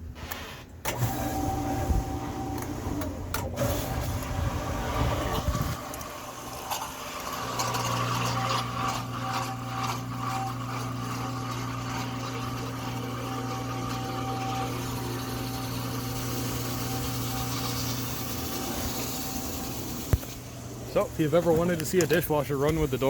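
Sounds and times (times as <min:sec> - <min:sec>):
dishwasher motor humming: 0:00.9 - 0:23.0
water spraying: 0:14.6 - 0:20.6.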